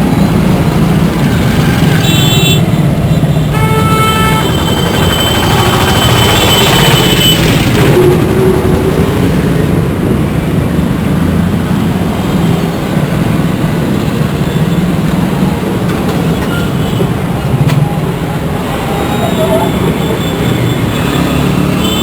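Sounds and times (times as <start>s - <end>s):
heavy traffic rumbling: 0.0s - 22.0s
vehicle horn: 1.4s - 2.7s, 3.4s - 7.7s.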